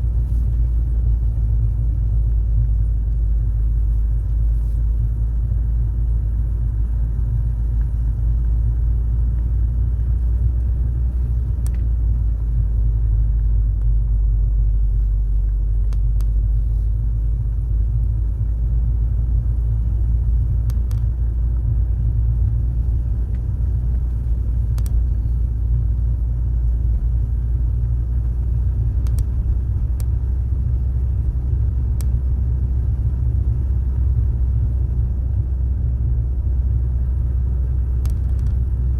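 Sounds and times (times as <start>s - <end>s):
car road and engine rumble: 0.0s - 38.9s
faint ticks: 24.0s - 25.4s, 29.0s - 29.4s.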